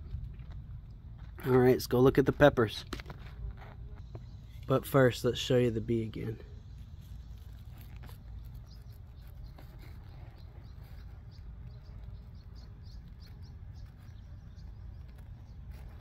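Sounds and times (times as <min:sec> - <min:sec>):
low outdoor rumble: 0:00.0 - 0:16.0
small bird chirping: 0:04.0 - 0:16.0.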